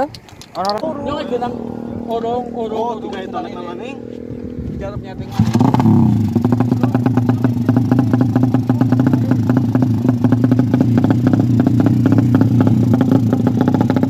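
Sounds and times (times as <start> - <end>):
motorcycle engine fast idle: 5.2 - 14.0.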